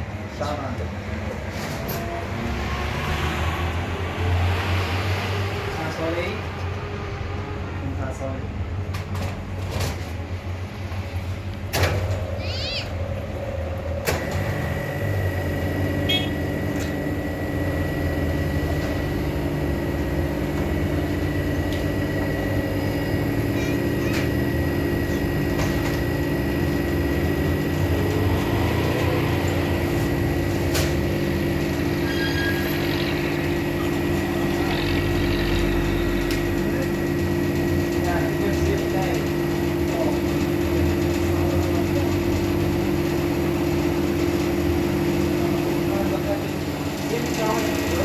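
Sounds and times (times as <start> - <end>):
vehicle engine droning: 13.0 - 38.3
thin steady whine: 14.2 - 38.5.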